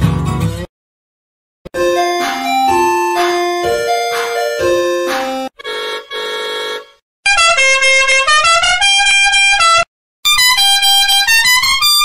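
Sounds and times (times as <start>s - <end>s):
buzzy ice cream truck jingle: 1.7s - 7.6s.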